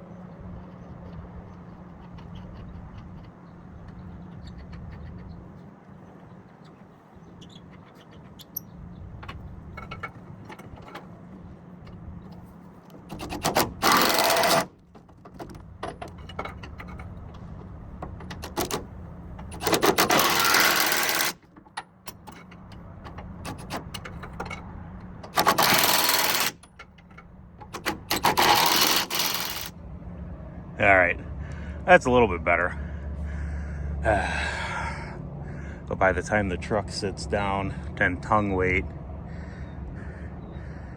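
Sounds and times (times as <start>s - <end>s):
metal clicks and knocks: 0.9s - 6.8s, 7.4s - 29.7s
power tool running: 13.1s - 14.8s, 19.5s - 21.4s, 25.3s - 26.6s, 28.0s - 29.7s.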